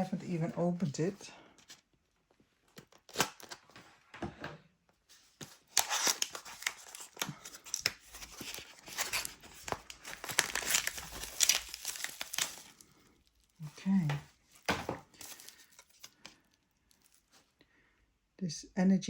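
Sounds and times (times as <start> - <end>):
packaging crinkling and tearing: 2.6 - 3.8, 5.4 - 17.4.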